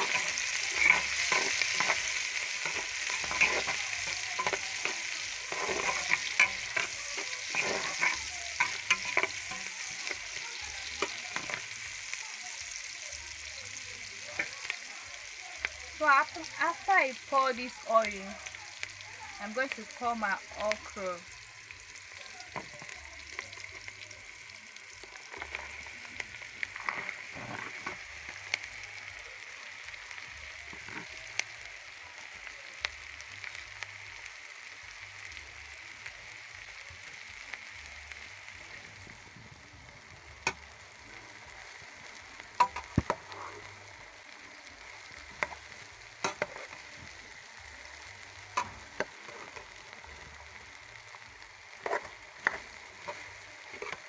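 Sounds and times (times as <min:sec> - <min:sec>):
utensil knocking and scraping pot: 0:00.0 - 0:10.2
okra sizzling in hot oil: 0:00.0 - 0:54.0.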